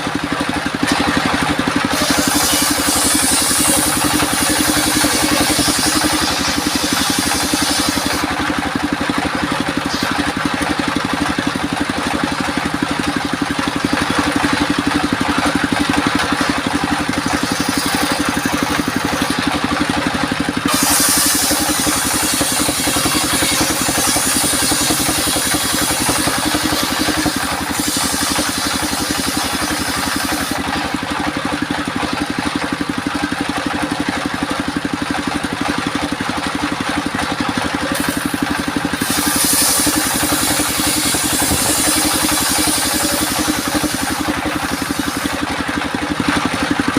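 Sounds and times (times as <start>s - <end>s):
sawmill engine hum: 0.0s - 46.9s
saw blade hissing through wood: 1.8s - 10.6s, 11.2s - 31.0s, 37.8s - 45.9s.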